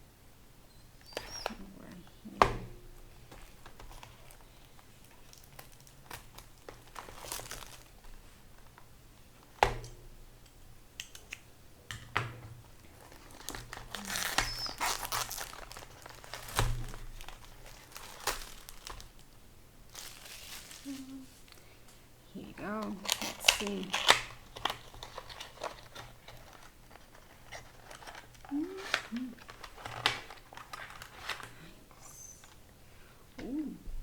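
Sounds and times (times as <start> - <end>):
packaging crinkling: 3.0 - 8.8, 12.7 - 21.7, 22.8 - 32.6.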